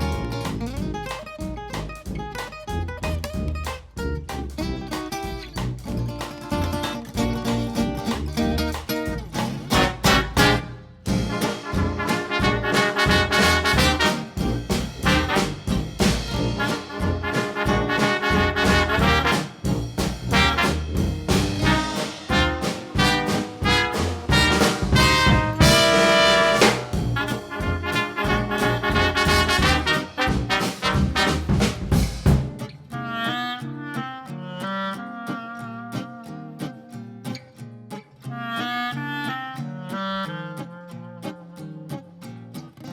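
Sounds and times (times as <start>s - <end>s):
traditional jazz band: 0.0s - 36.7s
trombone: 9.6s - 33.5s
trumpet: 9.7s - 36.6s.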